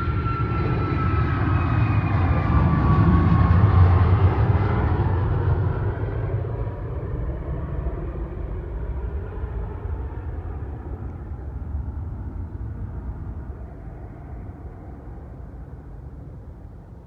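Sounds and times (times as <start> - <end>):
jet engine roar: 0.0 - 16.6.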